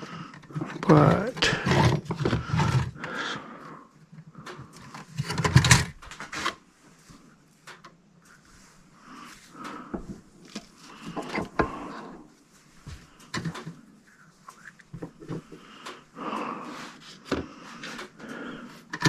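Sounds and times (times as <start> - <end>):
tools and parts clattering: 0.3 - 3.0, 4.8 - 6.6, 10.0 - 12.1, 13.0 - 13.8, 18.8 - 19.0.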